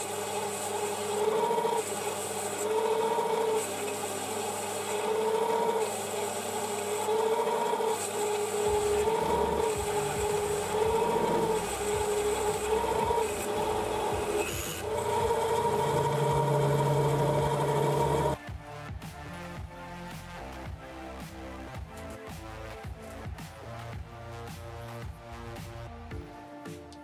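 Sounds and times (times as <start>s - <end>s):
stepper motors whining: 0.0s - 18.4s.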